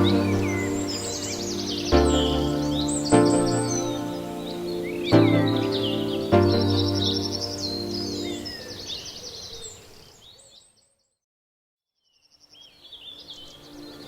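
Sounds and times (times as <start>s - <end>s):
held music chord: 0.0s - 8.8s
birds chirping and trilling: 0.0s - 11.2s, 12.0s - 14.0s.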